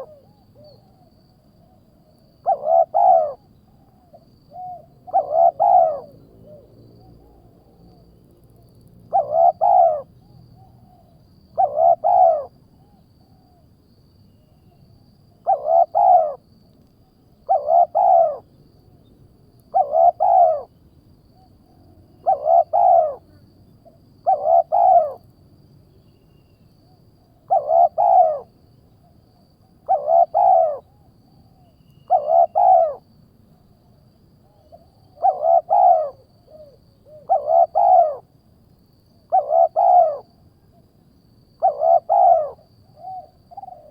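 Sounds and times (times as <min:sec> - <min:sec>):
bird call: 0:02.4 - 0:06.6, 0:27.5 - 0:28.5, 0:31.6 - 0:33.0, 0:39.3 - 0:40.2.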